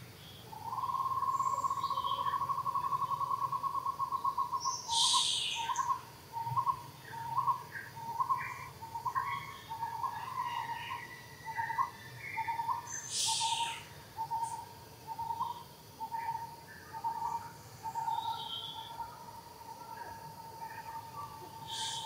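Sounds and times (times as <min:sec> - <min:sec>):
bird calling: 0:00.5 - 0:22.0.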